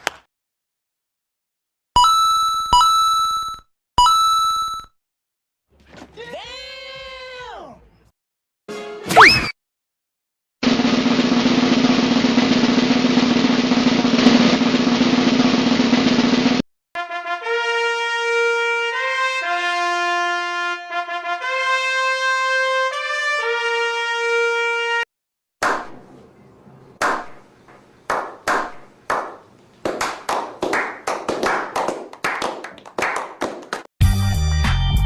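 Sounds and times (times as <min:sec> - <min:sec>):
sharp claps: 0:00.0 - 0:00.3, 0:25.6 - 0:26.0, 0:27.0 - 0:27.4, 0:28.1 - 0:33.9
brass fanfare: 0:17.0 - 0:25.0.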